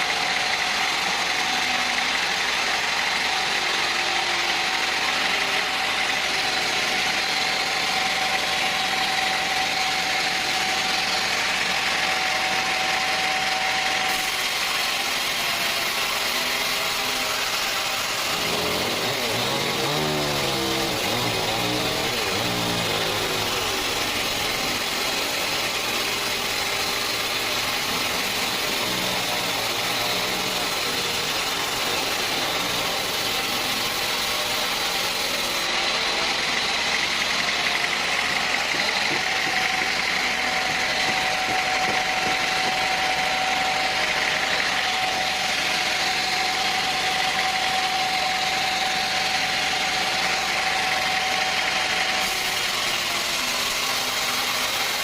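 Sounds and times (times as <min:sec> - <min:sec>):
sawmill engine running: 0:00.0 - 0:55.0
steady whine: 0:17.1 - 0:34.5.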